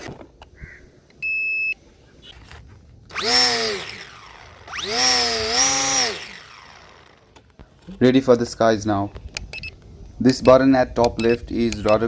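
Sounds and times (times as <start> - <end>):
electric motor and propeller whine: 3.1 - 7.6.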